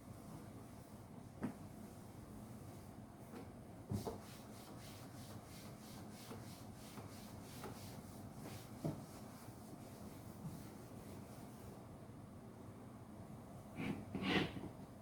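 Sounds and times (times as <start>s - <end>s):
cloth rubbing a surface: 4.0s - 11.8s.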